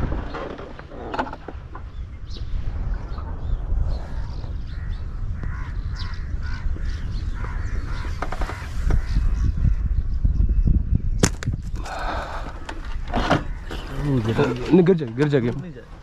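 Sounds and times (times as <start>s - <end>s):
birds making harsh calls: 0.0s - 10.6s, 11.2s - 15.5s
low wind rumble on microphone: 0.0s - 16.0s.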